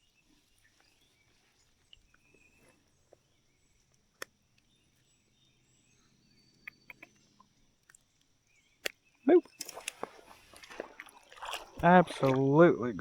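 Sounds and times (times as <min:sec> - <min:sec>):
faint outdoor ambience: 0:00.0 - 0:13.0
sharp clicks: 0:06.6 - 0:08.0.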